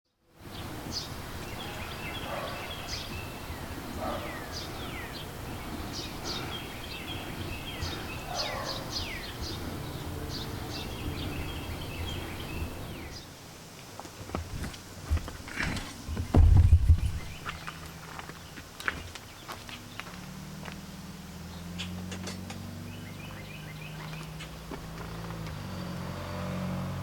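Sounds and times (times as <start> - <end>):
birds chirping and calling: 0.5 - 13.3, 14.3 - 17.9, 21.5 - 24.8.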